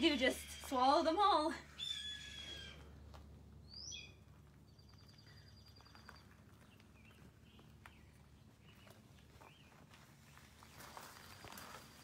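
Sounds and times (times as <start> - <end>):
small bird chirps: 3.6 - 9.8.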